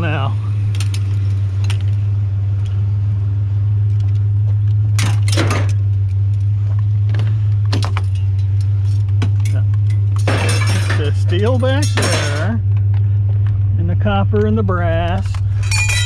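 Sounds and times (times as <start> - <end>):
scrap metal clanking: 8.0 - 12.6, 15.3 - 16.0.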